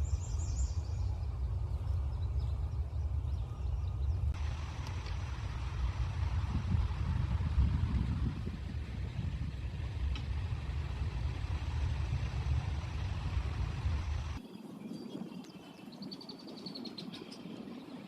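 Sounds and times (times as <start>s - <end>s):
bird chirping: 0.0s - 5.2s
steady low rumble: 0.0s - 14.4s.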